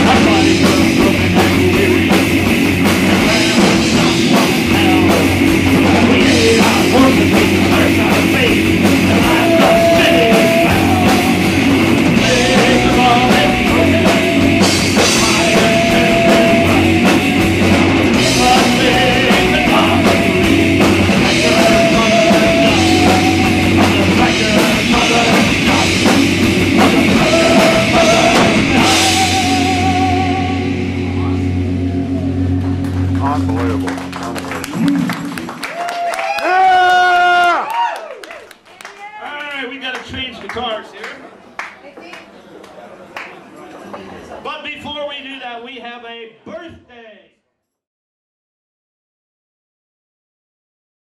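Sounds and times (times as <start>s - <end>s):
live rock band playing: 0.0s - 37.4s.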